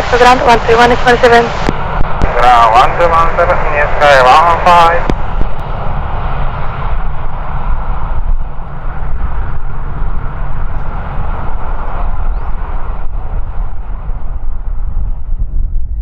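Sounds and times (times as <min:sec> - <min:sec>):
steady rushing noise: 0:00.0 - 0:16.0
wind buffeting microphone: 0:00.0 - 0:16.0.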